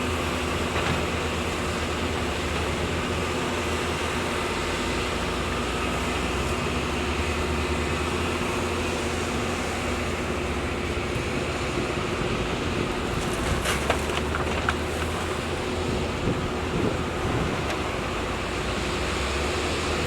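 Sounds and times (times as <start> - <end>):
heavy machinery diesel engine: 0.0 - 20.0.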